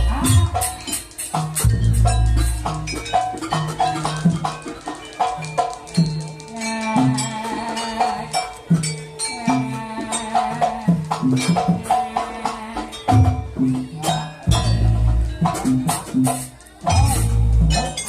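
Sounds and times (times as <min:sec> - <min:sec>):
drums: 0:00.0 - 0:18.0
rattling percussion: 0:00.0 - 0:18.0
ensemble playing struck pitched notes: 0:14.5 - 0:15.9, 0:16.8 - 0:18.0.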